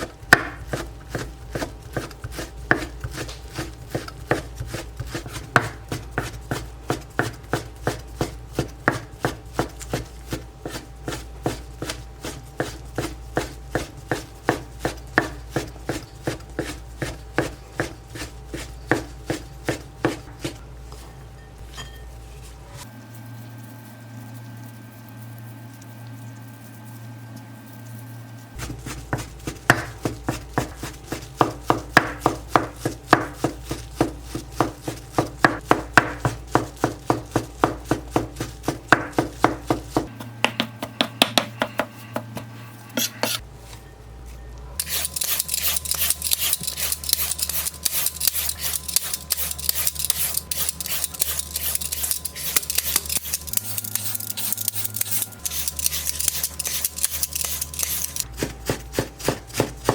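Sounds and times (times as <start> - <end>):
knife chopping on cutting board: 0.0 - 20.6, 28.6 - 43.4, 44.8 - 59.9
rough rasping noise: 44.8 - 58.3.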